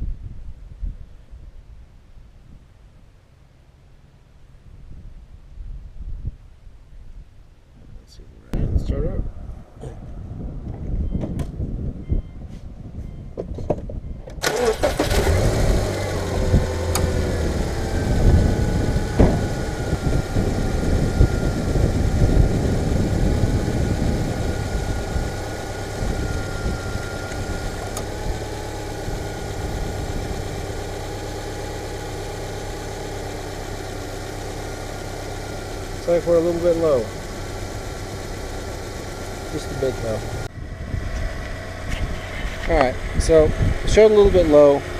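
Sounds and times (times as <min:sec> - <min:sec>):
car engine starting and idling: 0:14.4 - 0:44.9.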